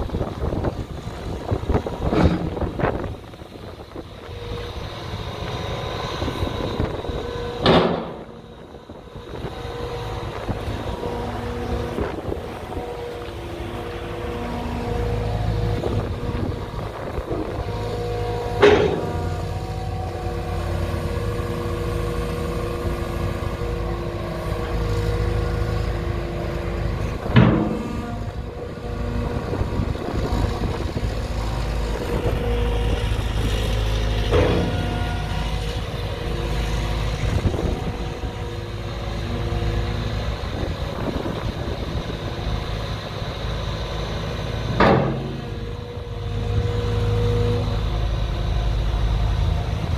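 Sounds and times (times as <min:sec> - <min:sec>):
diesel engine running: 0:00.0 - 0:49.9
sharp metallic knocks: 0:18.6 - 0:19.3.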